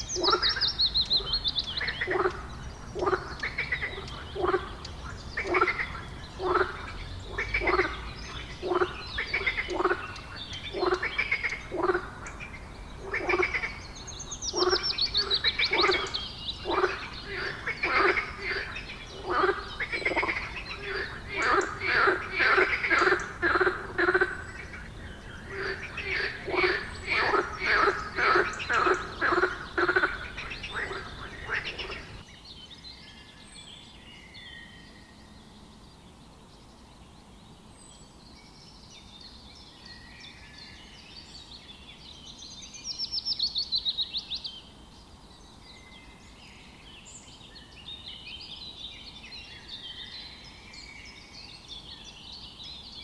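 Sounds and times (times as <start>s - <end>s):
bird trilling: 0.0s - 32.2s
frog croaking: 0.0s - 32.2s
birds chirping: 0.0s - 32.5s.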